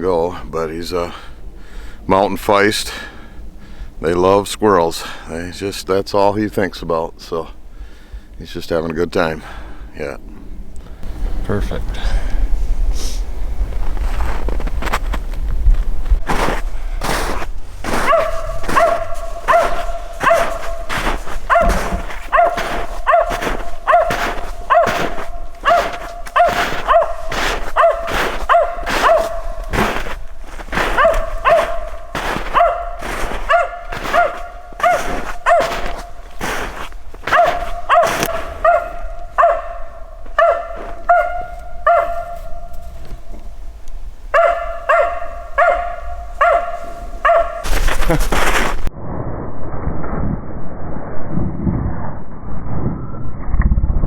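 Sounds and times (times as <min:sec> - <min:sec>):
dog barking: 0:16.4 - 0:42.9, 0:44.3 - 0:48.0.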